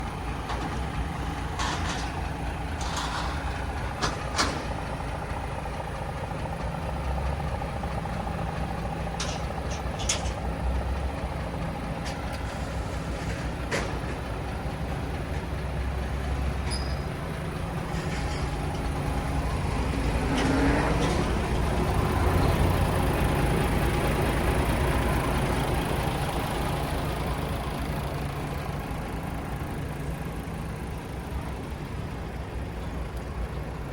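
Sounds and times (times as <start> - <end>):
diesel engine idling: 0.0 - 33.9
sharp clicks and knocks: 0.4 - 4.9, 9.1 - 10.6, 13.1 - 14.3.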